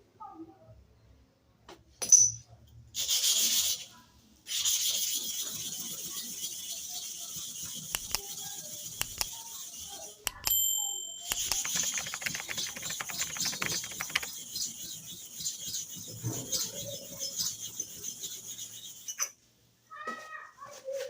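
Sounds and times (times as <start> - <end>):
metal blade scraping on sharpener: 4.8 - 10.6
brief ringing tone: 10.4 - 12.8.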